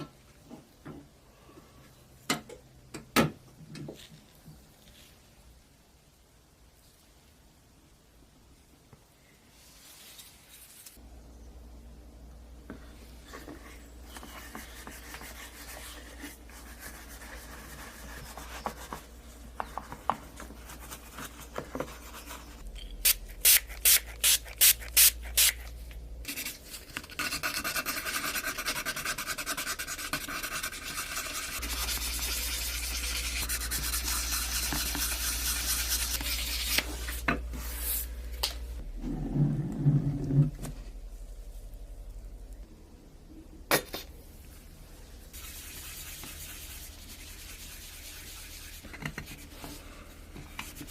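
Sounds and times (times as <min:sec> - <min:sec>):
low hum: 0:37.4 - 0:45.3.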